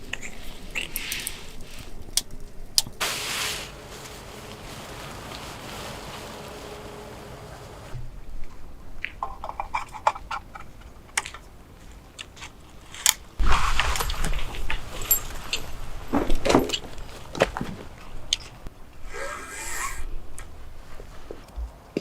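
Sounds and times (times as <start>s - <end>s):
rustling and knocking: 13.4s - 18.6s.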